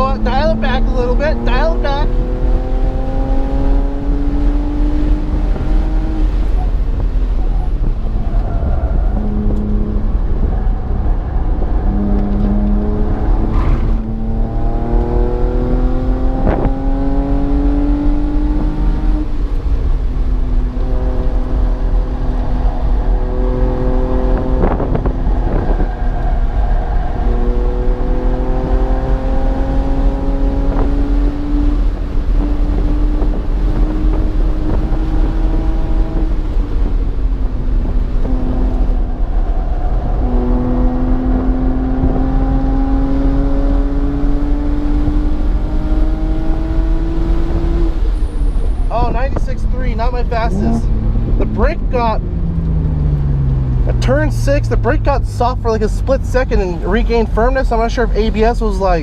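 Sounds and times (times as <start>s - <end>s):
car engine accelerating hard: 0.0s - 59.0s
low rumble: 48.1s - 58.5s.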